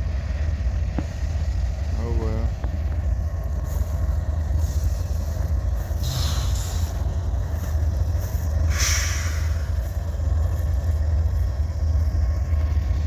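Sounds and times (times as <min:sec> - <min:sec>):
freight train rumbling past: 0:00.0 - 0:13.0
hissing rushes: 0:08.6 - 0:09.8.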